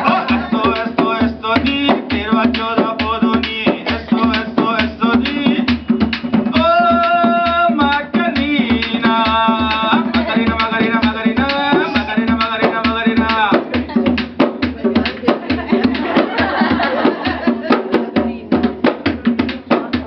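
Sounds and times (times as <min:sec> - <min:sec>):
hand drum beat: 0:00.0 - 0:20.0.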